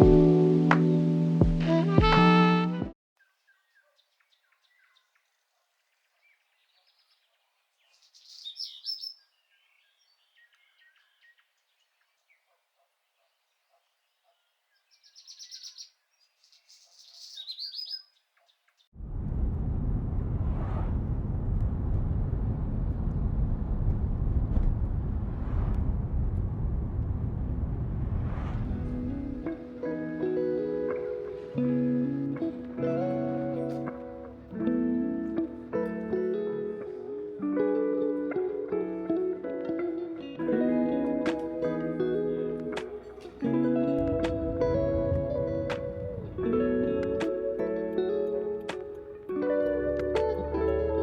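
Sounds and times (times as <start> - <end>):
short bird chirps: 14.9 - 18.7
loud steady rushing noise: 19.0 - 29.8.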